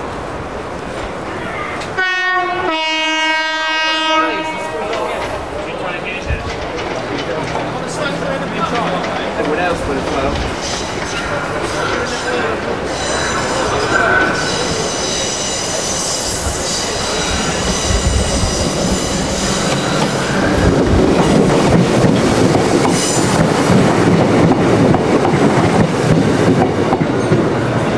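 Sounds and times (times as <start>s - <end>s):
diesel train rumble: 0.0s - 27.9s
high-pitched wheel squeal: 12.9s - 20.0s.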